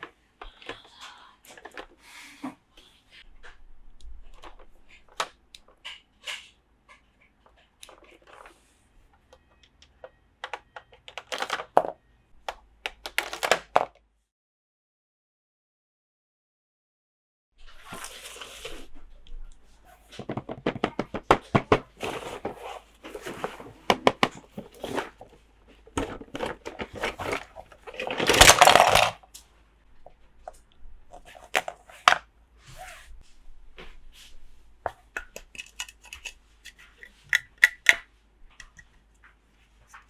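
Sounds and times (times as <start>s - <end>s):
plastic toy pieces clicking: 12.9s - 13.9s, 27.9s - 29.2s, 35.2s - 38.0s
rustling scrape: 17.6s - 19.1s, 21.8s - 23.9s, 24.5s - 29.2s, 31.1s - 34.8s.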